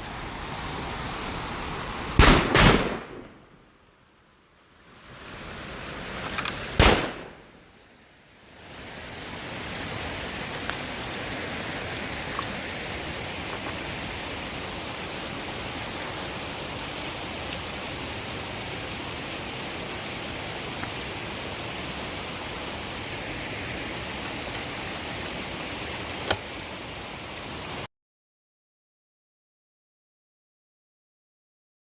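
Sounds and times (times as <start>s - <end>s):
steady hiss: 0.0s - 27.9s
rifle shot: 2.2s - 3.6s, 6.8s - 7.6s.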